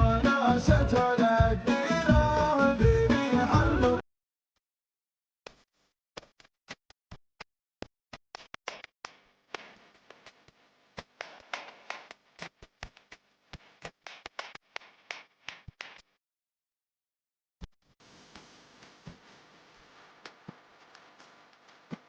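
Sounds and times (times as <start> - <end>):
steady hiss of rain: 18.0 - 22.0.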